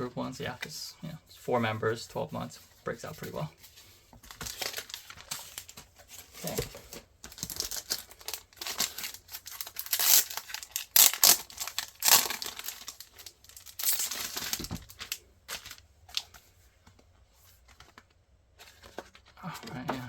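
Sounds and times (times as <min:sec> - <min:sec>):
packaging crinkling: 0:04.2 - 0:16.5.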